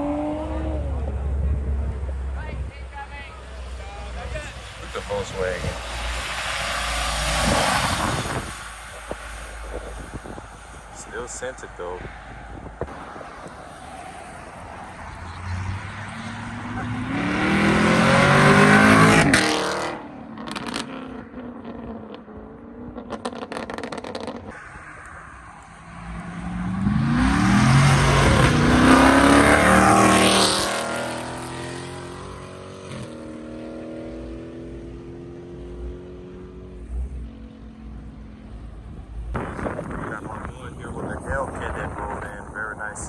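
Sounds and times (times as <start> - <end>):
car engine accelerating: 0.0 - 2.4, 12.6 - 40.4
cars driving past: 0.0 - 43.0.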